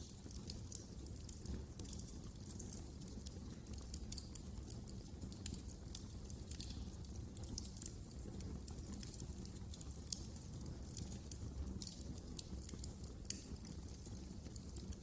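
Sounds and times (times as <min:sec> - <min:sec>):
fire crackling and popping: 0:00.0 - 0:15.0
flames rumbling: 0:00.1 - 0:15.0.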